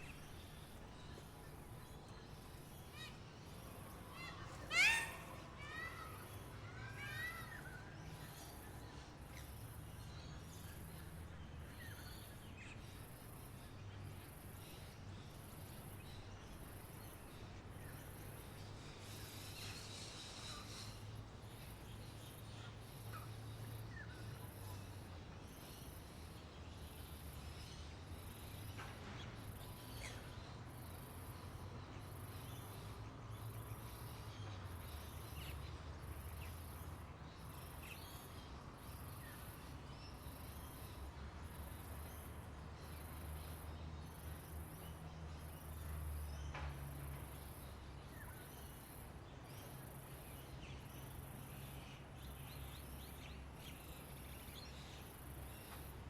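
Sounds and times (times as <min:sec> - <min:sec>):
bird chirps and calls: 0:00.0 - 0:08.6.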